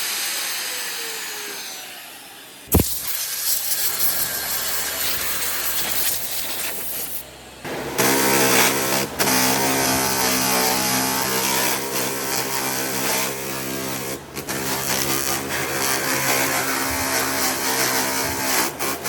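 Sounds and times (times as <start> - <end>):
power tool motor running: 0.0 - 19.0.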